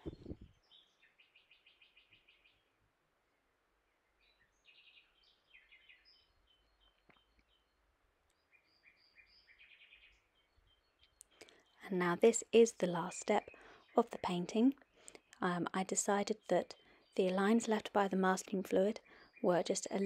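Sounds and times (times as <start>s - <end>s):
small bird chirping and trilling: 4.2s - 11.8s.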